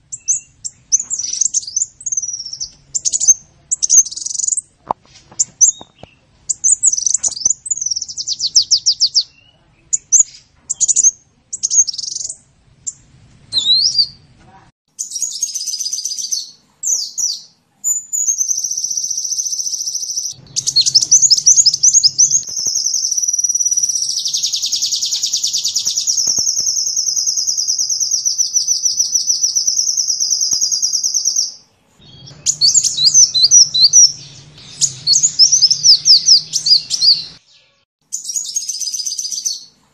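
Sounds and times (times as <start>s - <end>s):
sunbird chirps and trills: 0.0s - 14.3s, 14.9s - 39.8s.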